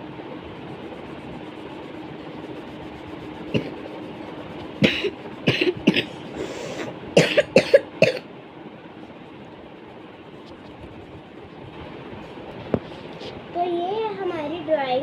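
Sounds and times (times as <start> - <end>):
steady background hiss: 0.0 - 15.0
person coughing: 4.8 - 8.3.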